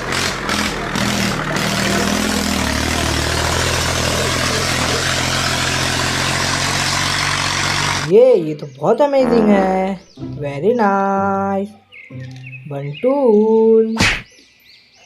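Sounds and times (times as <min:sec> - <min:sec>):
tractor engine idling: 0:00.0 - 0:08.2.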